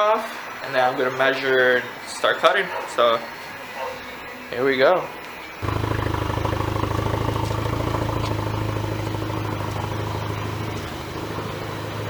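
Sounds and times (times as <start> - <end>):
car engine idling: 5.6 - 12.0.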